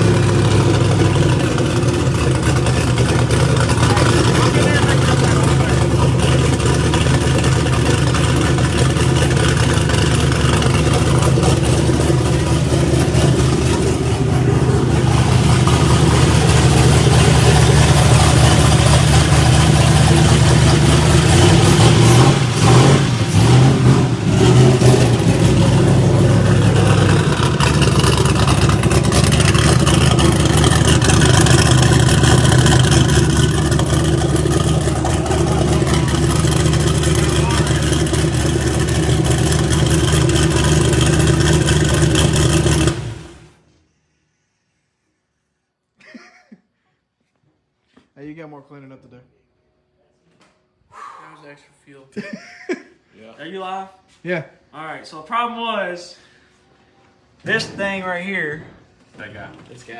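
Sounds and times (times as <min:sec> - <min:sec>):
car engine idling loudly: 0:00.0 - 0:43.6
engine throttle blips: 0:00.0 - 0:43.6.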